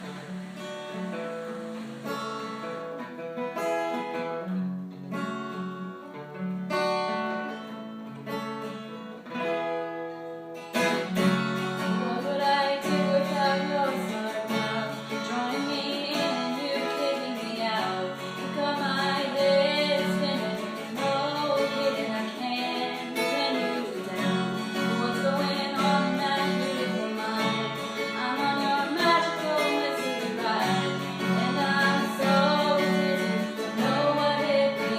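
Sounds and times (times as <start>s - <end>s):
acoustic guitar playing: 0.0s - 34.9s
person singing: 11.1s - 34.9s.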